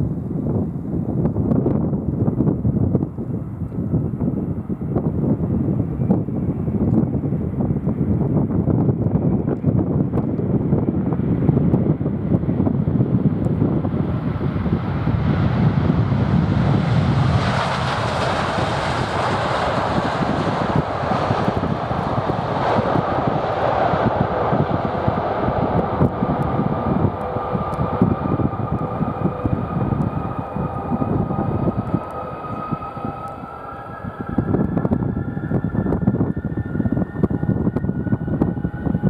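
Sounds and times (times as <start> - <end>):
turbine whine falling in pitch: 10.2 - 39.0
jet engines roaring: 10.8 - 39.0.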